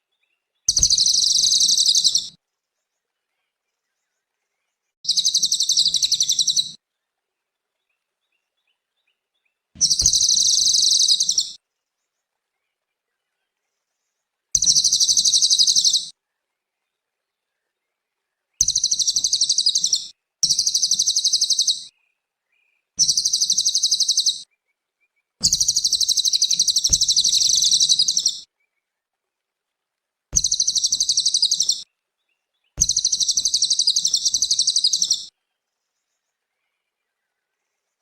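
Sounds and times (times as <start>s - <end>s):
bird trilling song: 0.2s - 2.4s, 5.1s - 6.8s, 9.8s - 11.6s, 14.6s - 16.1s, 18.6s - 24.6s, 25.4s - 28.5s, 30.4s - 35.3s.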